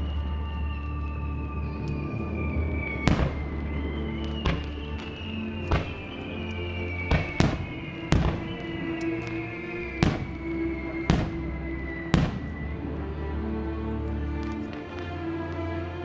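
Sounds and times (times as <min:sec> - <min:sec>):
music with held notes: 0:00.0 - 0:16.0
fireworks bursting with bangs: 0:03.0 - 0:12.8.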